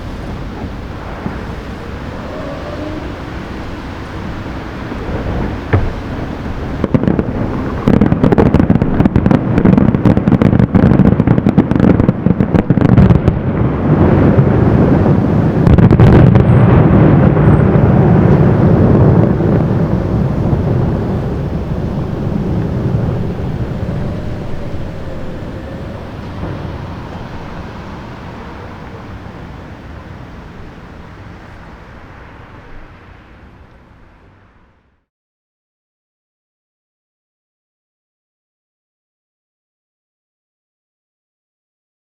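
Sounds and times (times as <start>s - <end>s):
rumble of overlapping bursts: 0.0s - 16.0s, 16.9s - 31.4s
fireworks bangs and crackles: 0.0s - 31.8s.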